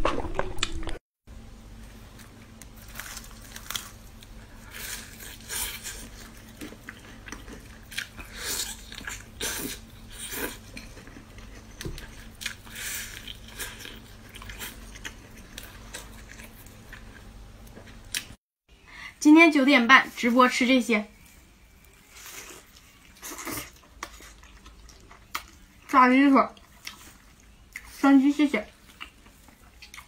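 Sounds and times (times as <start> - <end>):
crispy fried chicken crunching: 2.2 - 17.3.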